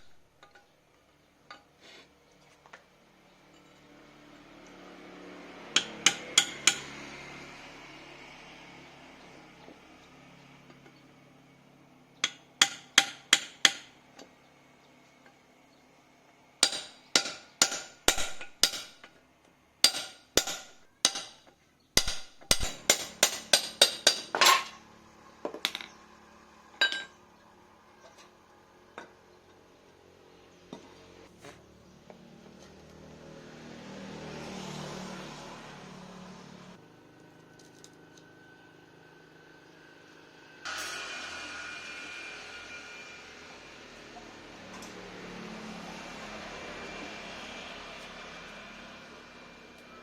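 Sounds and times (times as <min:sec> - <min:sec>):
hammer tapping on metal: 0:05.8 - 0:07.0, 0:12.2 - 0:13.9, 0:16.6 - 0:19.1, 0:19.8 - 0:21.4, 0:22.0 - 0:24.5.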